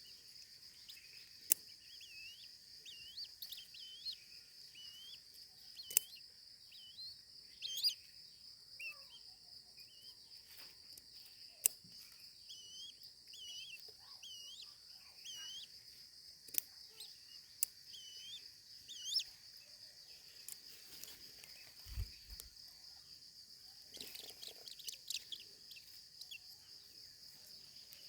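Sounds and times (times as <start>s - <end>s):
high insect drone: 0.0s - 28.0s
small birds chirping: 0.0s - 28.0s
sharp clicks: 0.9s - 4.1s, 5.7s - 6.3s, 16.4s - 18.4s.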